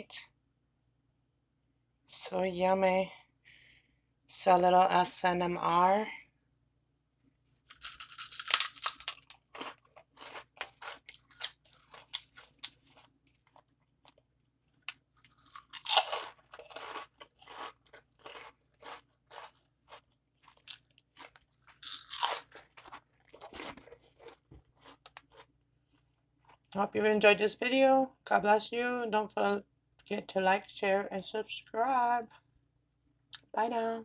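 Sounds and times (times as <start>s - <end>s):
crunchy snack chewing: 7.5s - 26.7s.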